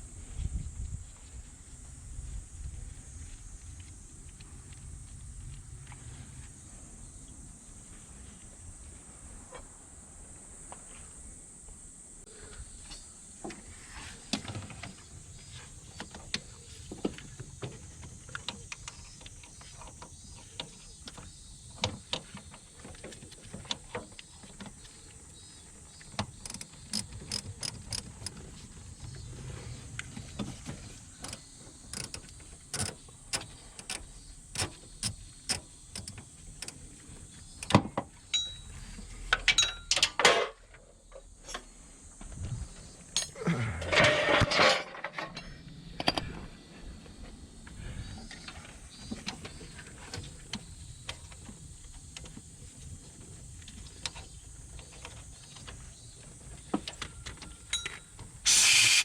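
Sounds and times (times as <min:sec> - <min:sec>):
hand tools clinking on metal: 0:38.3 - 0:38.7, 0:39.4 - 0:40.5, 0:57.7 - 0:58.1.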